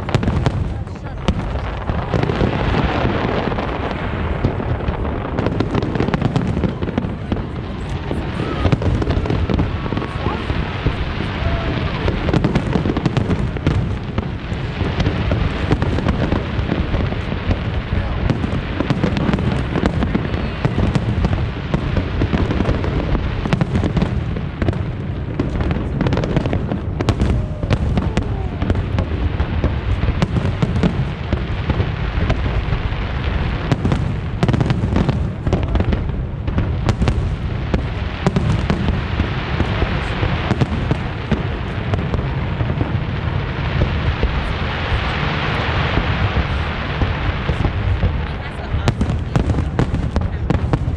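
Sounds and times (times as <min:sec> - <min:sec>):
crowd voices: 0:00.0 - 0:50.9
fireworks booming and crackling: 0:00.0 - 0:50.9.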